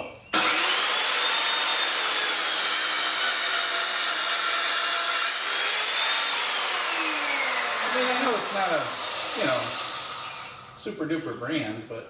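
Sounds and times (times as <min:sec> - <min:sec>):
miter saw cutting wood: 0:00.4 - 0:10.9.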